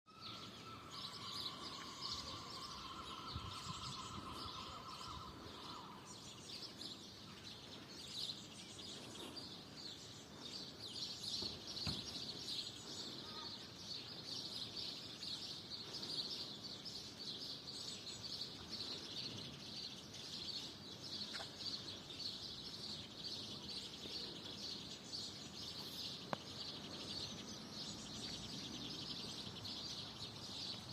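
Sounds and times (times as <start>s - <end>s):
steady high tone: 0.1s - 6.3s
small birds chirping: 0.1s - 30.9s.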